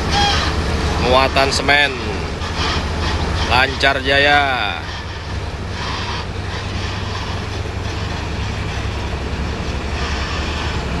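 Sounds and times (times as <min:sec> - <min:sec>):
truck engine rumble: 0:00.0 - 0:11.0
tyre and road noise: 0:00.0 - 0:11.0.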